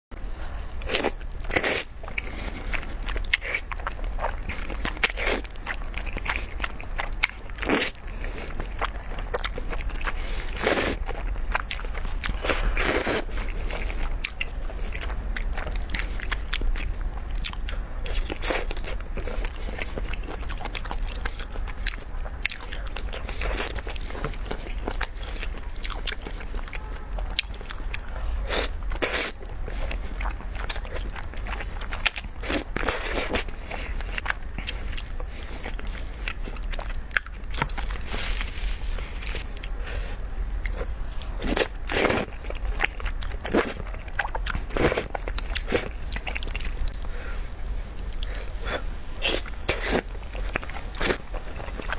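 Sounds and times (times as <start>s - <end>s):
person chewing food: 0.2s - 51.9s.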